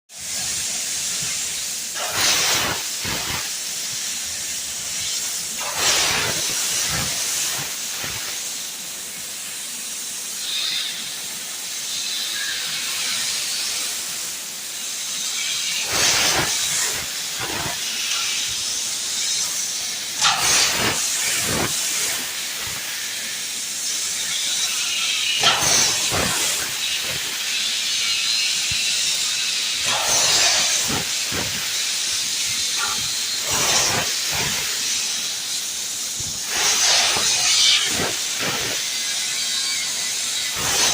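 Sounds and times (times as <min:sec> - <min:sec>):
tube-cutting machine hissing: 0:00.1 - 0:40.9
crackling rushes of cutting: 0:02.0 - 0:03.6, 0:04.9 - 0:08.4, 0:15.6 - 0:18.6, 0:20.2 - 0:23.0, 0:24.2 - 0:40.9.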